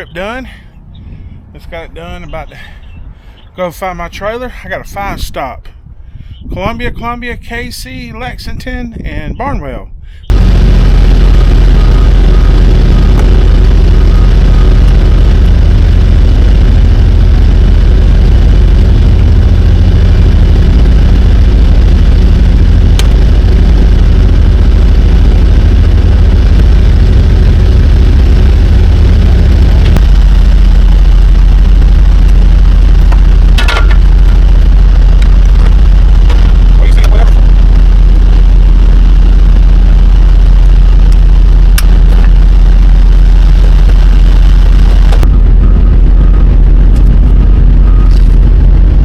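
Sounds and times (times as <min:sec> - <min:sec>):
diesel truck engine running: 0:10.3 - 0:49.0.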